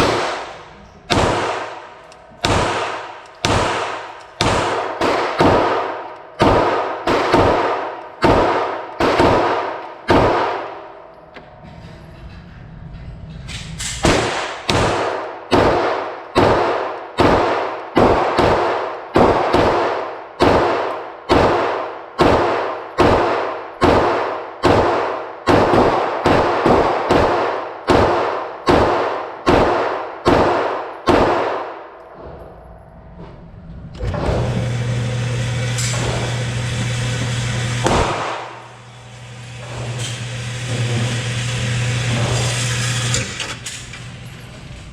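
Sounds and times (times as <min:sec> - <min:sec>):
pistol shots: 0:00.0 - 0:10.9, 0:14.0 - 0:32.0, 0:37.8 - 0:38.8.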